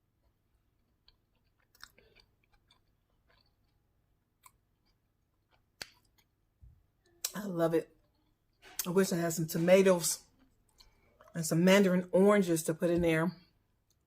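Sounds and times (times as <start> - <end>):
chewing food: 0.1 - 6.4.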